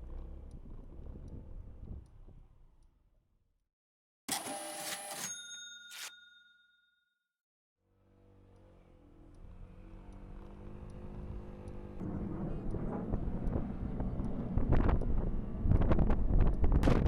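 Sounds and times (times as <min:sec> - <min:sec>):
wind buffeting microphone: 0:12.7 - 0:17.0.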